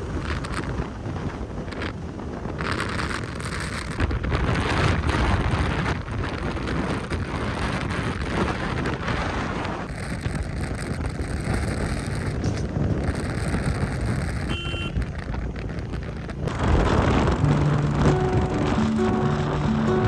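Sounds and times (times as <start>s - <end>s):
road noise: 0.0s - 20.0s
wind buffeting microphone: 0.0s - 20.0s
motorcycle engine: 13.9s - 20.0s.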